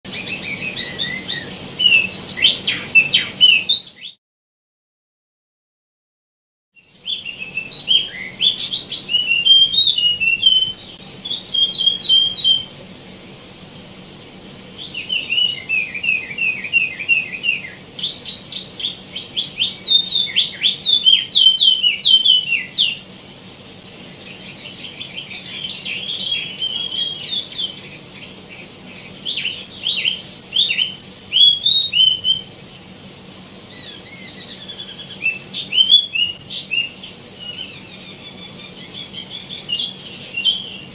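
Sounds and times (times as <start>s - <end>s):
songbird chirping: 6.8s - 12.8s, 14.8s - 23.1s, 24.2s - 32.5s, 33.7s - 40.9s.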